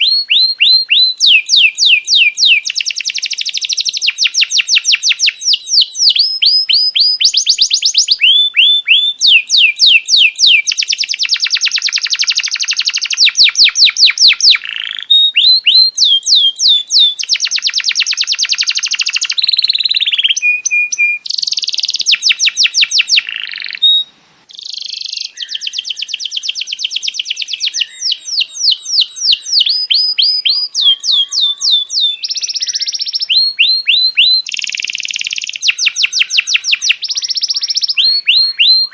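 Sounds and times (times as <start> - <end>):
songbird singing whistles and trills: 0.0 - 38.9.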